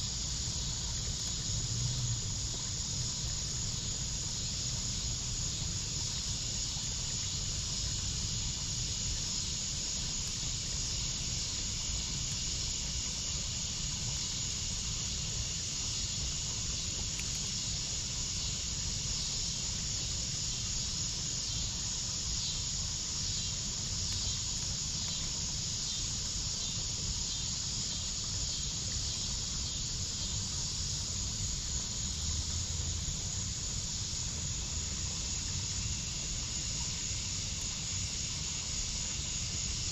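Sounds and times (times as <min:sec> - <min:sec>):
low steady rumble: 0:00.0 - 0:09.2
insects chirping: 0:00.0 - 0:39.9.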